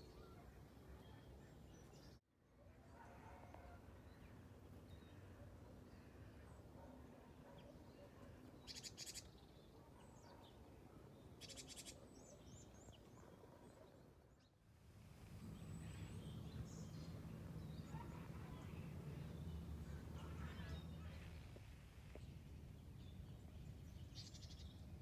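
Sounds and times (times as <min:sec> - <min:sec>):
bird chirps: 0:08.6 - 0:09.5, 0:11.4 - 0:13.2
low steady hum: 0:15.1 - 0:25.0.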